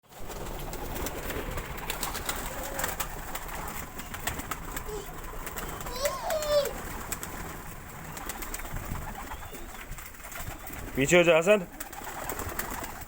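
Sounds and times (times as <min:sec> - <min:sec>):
faint low bird calls: 0:02.1 - 0:12.4.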